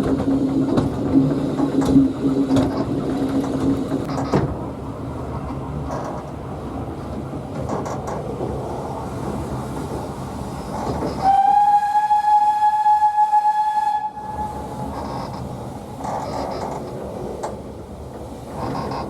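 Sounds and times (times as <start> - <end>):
steam train rumbling and rattling: 0.0 - 19.0
steam locomotive whistle: 11.2 - 14.9.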